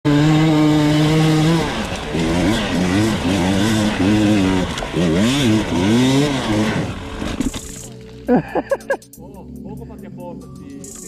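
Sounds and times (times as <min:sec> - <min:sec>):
motorbike engine revving: 0:00.1 - 0:07.9.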